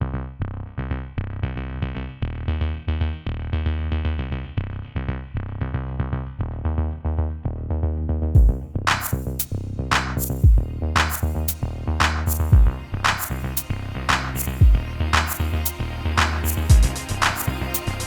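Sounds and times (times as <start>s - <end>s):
electronic music with heavy bass: 8.4s - 18.0s.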